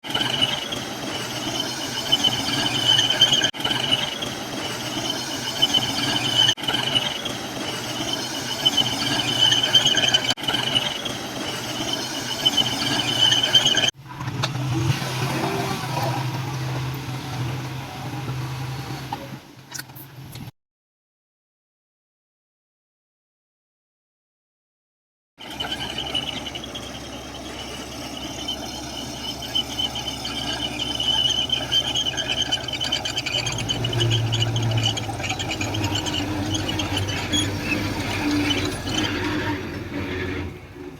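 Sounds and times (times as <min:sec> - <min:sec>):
steel tracks squealing: 0:00.0 - 0:14.0, 0:25.4 - 0:40.9
diesel engine rumble: 0:00.0 - 0:20.5, 0:25.4 - 0:40.9.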